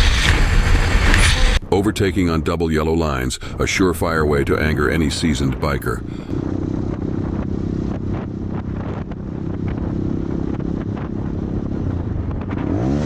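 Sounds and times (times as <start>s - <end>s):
motorcycle engine running: 4.7s - 13.0s.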